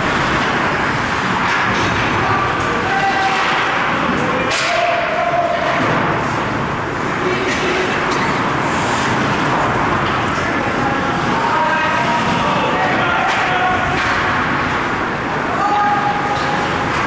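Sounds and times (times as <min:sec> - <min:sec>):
ice rink din: 0:01.3 - 0:06.2.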